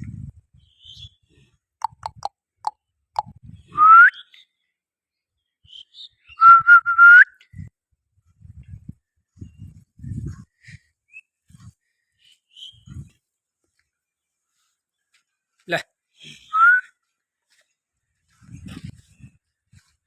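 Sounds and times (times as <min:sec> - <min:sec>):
rising whistles and chirps: 0:00.6 - 0:01.2, 0:03.6 - 0:04.6, 0:05.6 - 0:07.7, 0:11.1 - 0:13.1.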